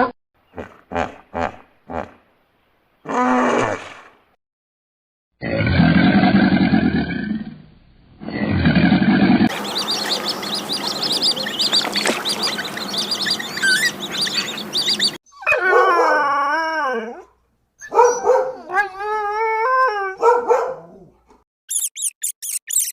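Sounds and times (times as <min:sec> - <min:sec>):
chorus of rapid high calls: 0:09.5 - 0:15.2
dog howling: 0:13.4 - 0:21.2.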